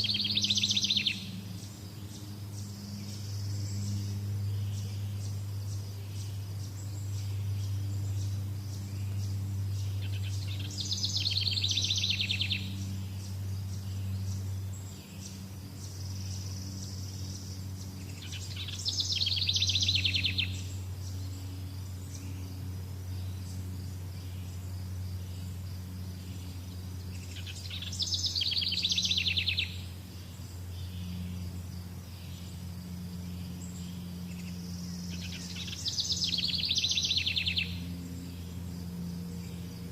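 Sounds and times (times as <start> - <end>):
bird trilling: 0.0 - 1.4, 10.0 - 12.8, 27.2 - 29.8
faint insect chirping: 0.0 - 39.9
low hum: 0.0 - 39.9.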